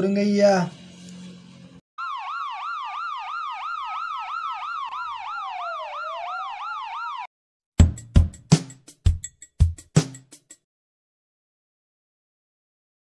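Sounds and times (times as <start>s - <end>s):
ambulance siren yelp: 2.0s - 7.3s.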